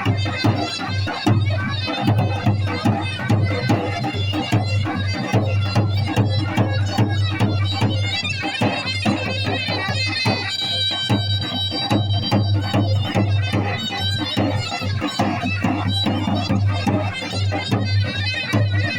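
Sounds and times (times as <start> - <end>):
quick percussion strokes: 0.0 - 18.9
reedy wind instrument drone: 0.0 - 18.9.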